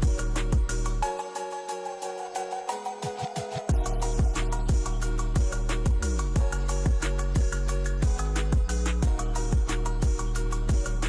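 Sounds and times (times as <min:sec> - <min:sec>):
background music with drum beat: 0:00.0 - 0:00.9, 0:03.3 - 0:11.0.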